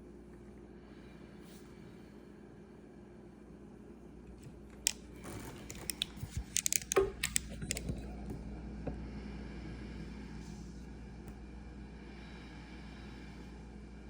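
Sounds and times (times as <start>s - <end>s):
sharp clicks and crackles: 5.6s - 8.0s.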